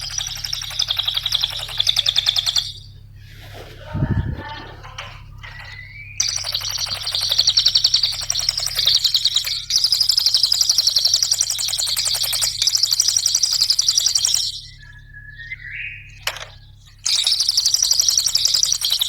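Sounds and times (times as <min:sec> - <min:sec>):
songbird chattering trill: 0:00.0 - 0:03.1, 0:03.8 - 0:19.0
faint low hum: 0:00.0 - 0:07.4.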